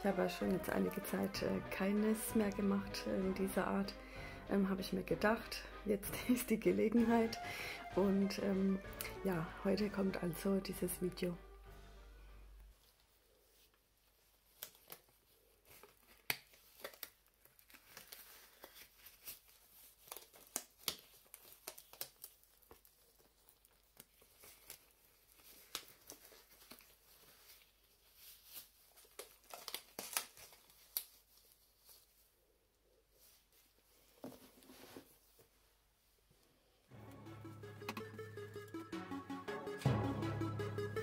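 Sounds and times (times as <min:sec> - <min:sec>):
latex gloves crinkling and snapping: 0:12.9 - 0:34.5.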